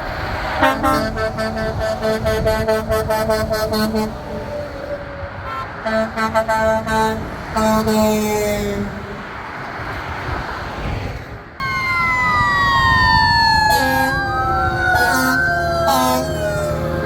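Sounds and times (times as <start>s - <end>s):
truck air horn blasts: 0.5s - 4.6s, 5.3s - 9.2s, 13.6s - 17.0s.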